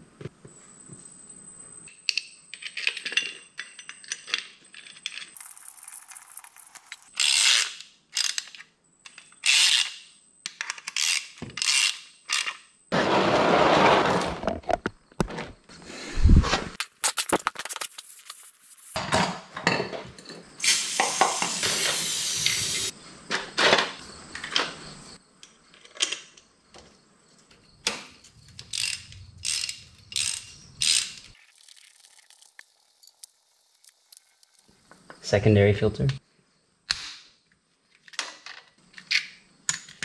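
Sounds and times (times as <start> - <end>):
metal parts clinking: 2.1 - 12.7, 28.5 - 31.4
ratchet wrench clicking: 7.1 - 8.5, 9.1 - 10.0, 10.8 - 12.6, 28.6 - 31.3.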